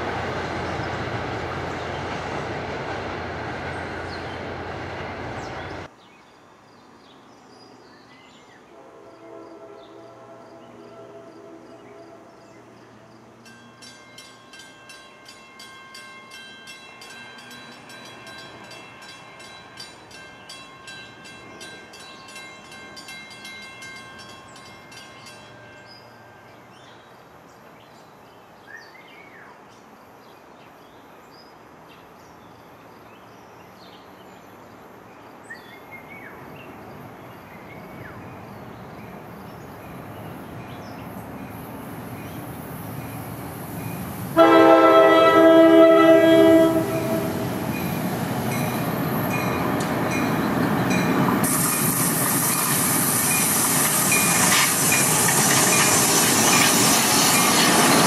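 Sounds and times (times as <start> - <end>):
approaching train rumble: 0.0 - 5.9, 33.0 - 58.0.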